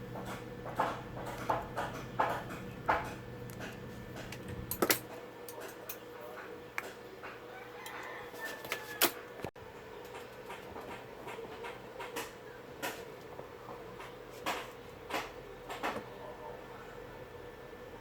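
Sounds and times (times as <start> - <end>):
tools clicking and tapping: 0.2 - 8.0, 10.0 - 16.1.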